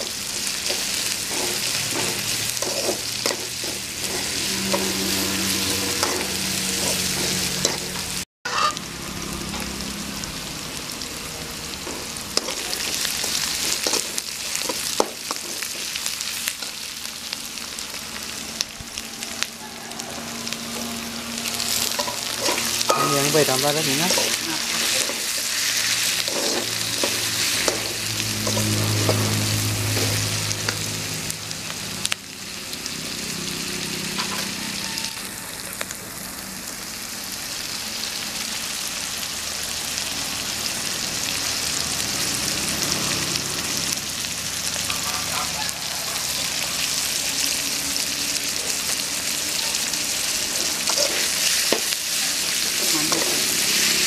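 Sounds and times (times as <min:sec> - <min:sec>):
vegetables sizzling in hot oil: 0:00.0 - 0:54.0
steel spoon scraping and knocking pan: 0:00.7 - 0:08.8, 0:21.8 - 0:29.3.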